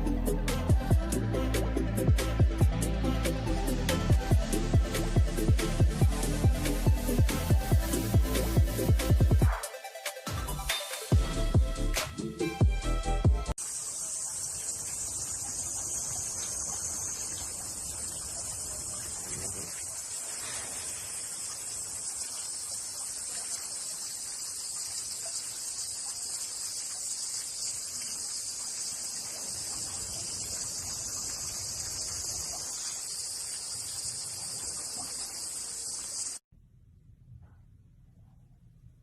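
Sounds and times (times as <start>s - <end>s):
high-pitched insect chorus: 13.6s - 36.4s.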